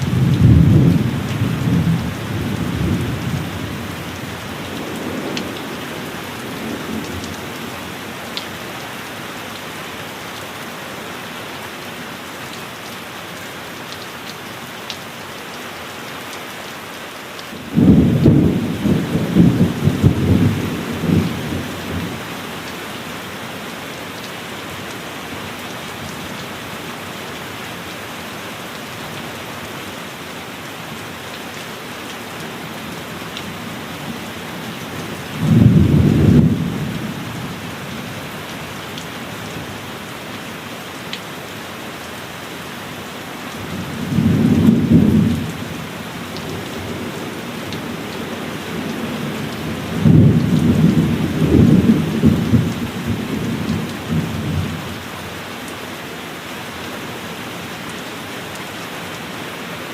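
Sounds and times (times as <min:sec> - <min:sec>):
thunder rumble: 0:00.0 - 0:03.8, 0:17.7 - 0:22.1
heavy rain: 0:00.0 - 0:59.9.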